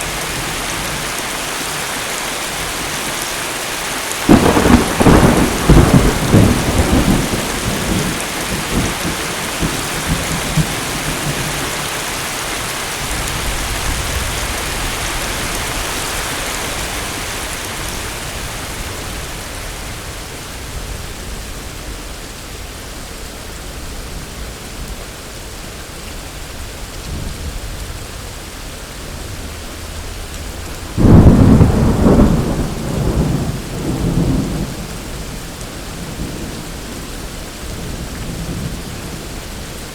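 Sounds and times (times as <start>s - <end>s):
heavy rain: 0.0s - 39.9s
loud thunderclap: 4.3s - 11.7s, 30.6s - 35.3s
thunder rumbling: 4.3s - 12.3s, 29.0s - 39.4s.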